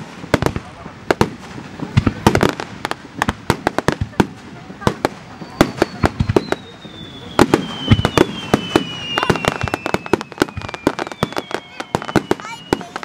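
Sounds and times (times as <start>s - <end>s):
fireworks bangs and cracks: 0.0s - 13.0s
high falling whistle: 5.3s - 13.0s.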